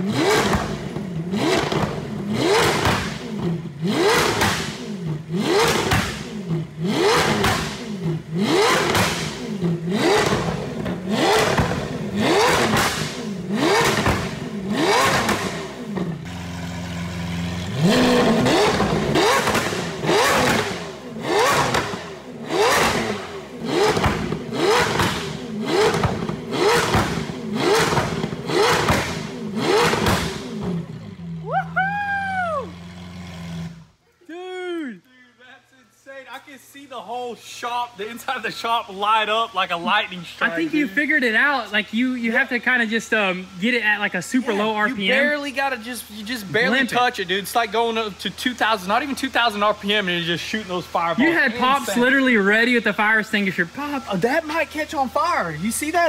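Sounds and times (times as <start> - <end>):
car engine idling: 0.0 - 31.5, 32.5 - 34.0
car engine revving: 0.0 - 31.6, 32.4 - 34.0, 37.8 - 56.0
exhaust pops and backfires: 0.0 - 34.0.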